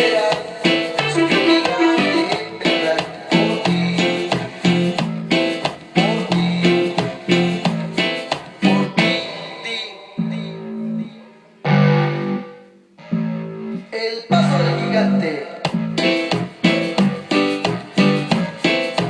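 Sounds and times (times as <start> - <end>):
synthesizer plucked guitar-like notes: 10.2 - 18.6.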